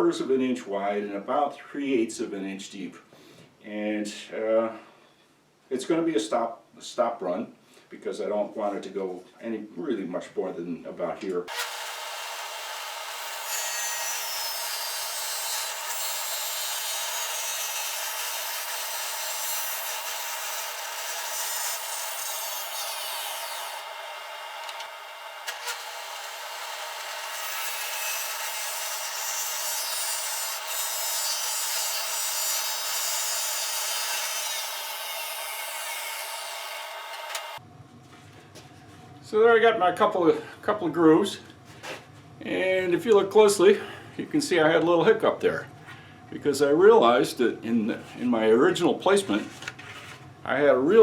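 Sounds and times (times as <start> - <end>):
power tool cutting wood: 11.5 - 37.6.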